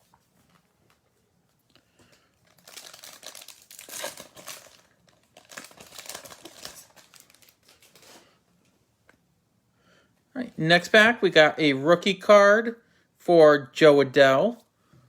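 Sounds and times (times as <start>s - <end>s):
wrapper tearing and crinkling: 2.4s - 8.2s.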